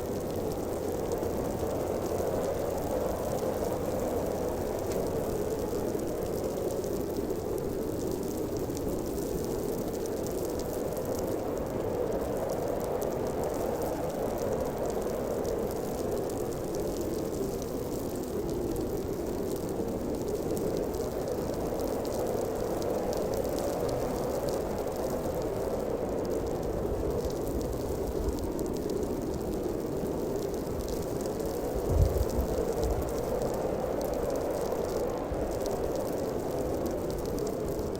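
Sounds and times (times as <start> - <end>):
blizzard wind blowing: 0.0 - 37.9
faint crackle: 0.0 - 37.9
deep rumble: 31.8 - 33.1.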